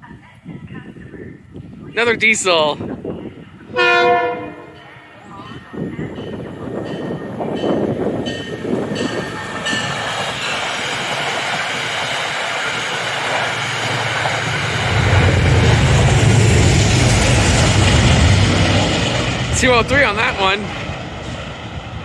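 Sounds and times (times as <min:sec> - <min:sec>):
diesel locomotive engine rumble: 0:00.0 - 0:22.0
train coaches rolling by: 0:02.0 - 0:22.0.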